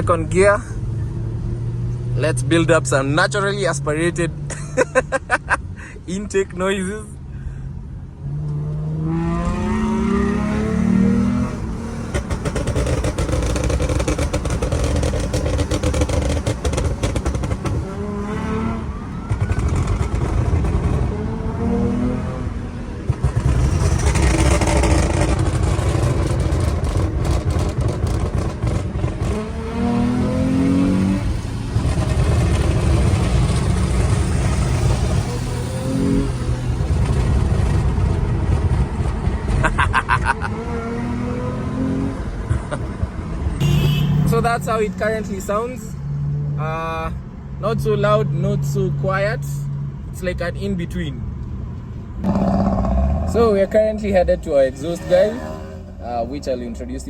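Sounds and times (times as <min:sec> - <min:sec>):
car engine revving: 0:08.2 - 0:46.8, 0:51.7 - 0:57.0.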